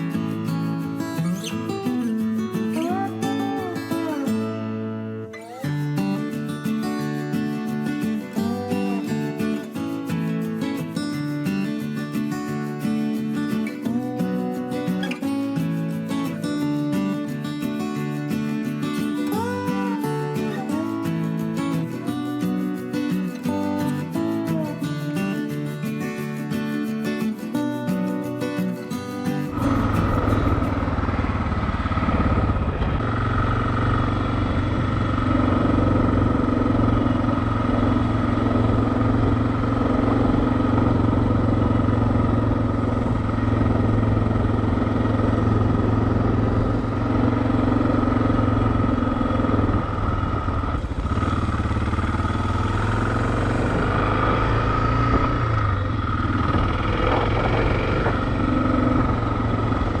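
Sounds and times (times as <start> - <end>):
motorcycle engine running: 7.2 - 11.4, 12.6 - 17.4, 18.0 - 25.2, 29.4 - 60.0
road and wind noise: 29.5 - 60.0.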